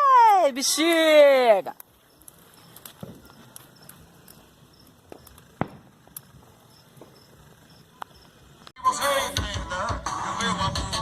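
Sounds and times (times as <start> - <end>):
bonfire crackling and popping: 0.0 - 8.8.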